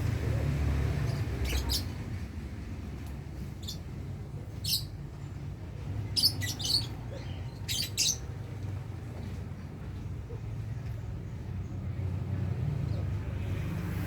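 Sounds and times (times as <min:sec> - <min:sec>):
lovebirds shrill chirps: 0:01.1 - 0:01.9, 0:03.6 - 0:03.8, 0:04.6 - 0:04.9, 0:06.1 - 0:08.3.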